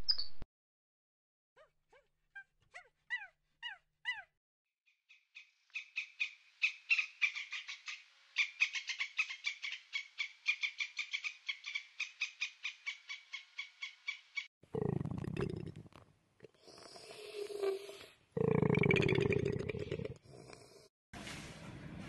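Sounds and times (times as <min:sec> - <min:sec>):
animal squeaks: 0:01.6 - 0:04.3.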